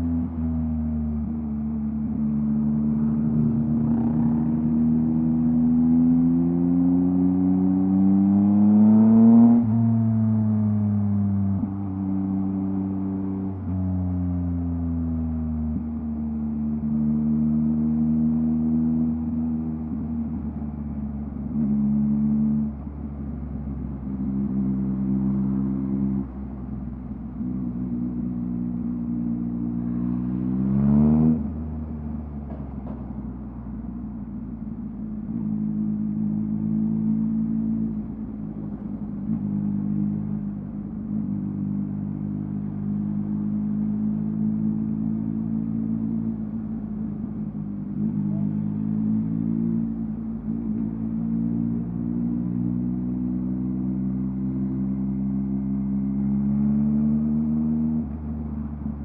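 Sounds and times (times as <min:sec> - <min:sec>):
motorcycle engine revving: 0:27.4 - 0:32.0.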